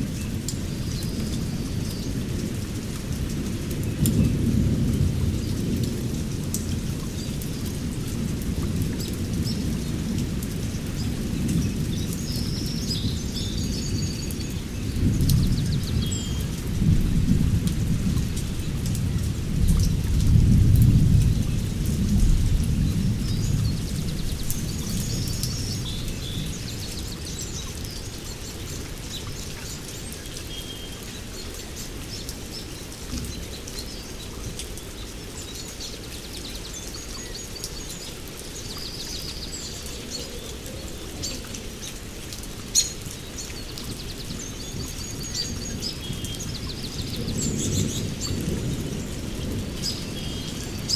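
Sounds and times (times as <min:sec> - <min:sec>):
steady rain: 0:00.0 - 0:50.9
thunder rumbling: 0:14.9 - 0:26.7.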